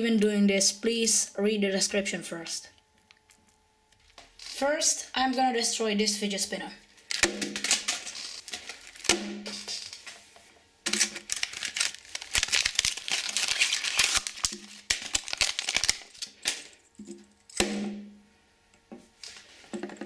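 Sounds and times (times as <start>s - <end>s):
packaging crinkling: 7.0s - 10.2s, 10.9s - 16.8s.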